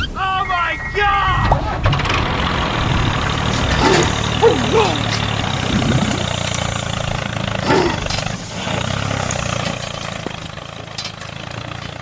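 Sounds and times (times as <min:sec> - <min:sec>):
tractor engine idling: 0:00.0 - 0:12.0
short falling cry: 0:03.6 - 0:06.3.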